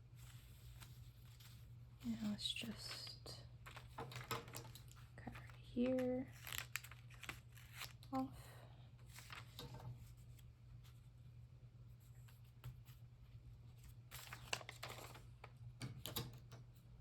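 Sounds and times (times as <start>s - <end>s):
low steady hum: 0.0s - 17.0s
paper rustling: 0.1s - 8.2s, 9.0s - 11.1s, 13.7s - 16.5s.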